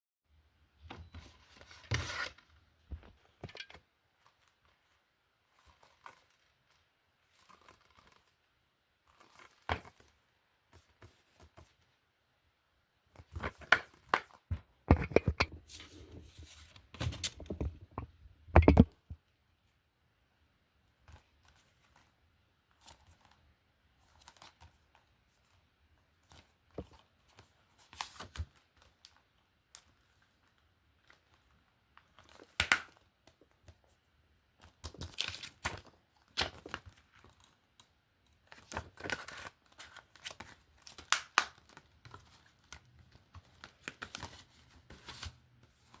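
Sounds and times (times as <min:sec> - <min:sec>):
objects clicking and knocking: 0:13.5 - 0:15.6, 0:17.0 - 0:19.1.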